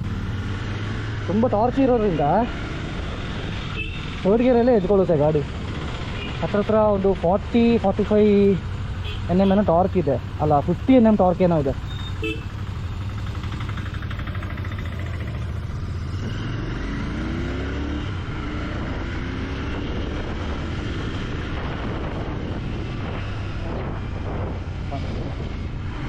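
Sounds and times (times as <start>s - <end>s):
motorcycle engine accelerating: 0.0s - 4.2s, 10.5s - 26.0s.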